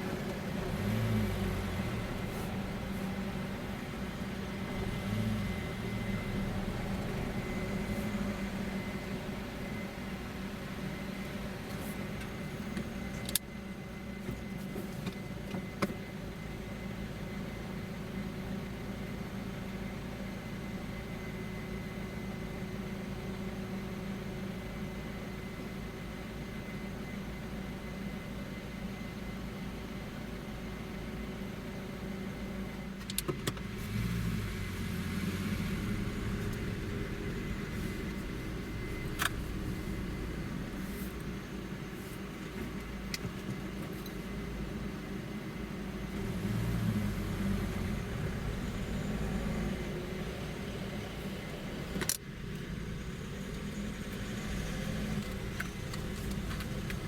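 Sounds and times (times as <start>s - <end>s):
road noise: 0.0s - 10.4s, 33.3s - 57.0s
car engine driving: 0.0s - 13.4s, 33.1s - 57.0s.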